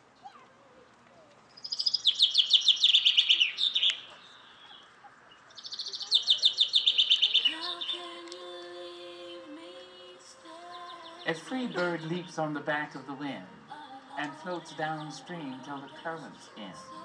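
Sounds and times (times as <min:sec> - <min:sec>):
rapid high bird chirps: 0:01.6 - 0:08.1
steady held musical tone: 0:07.5 - 0:17.0.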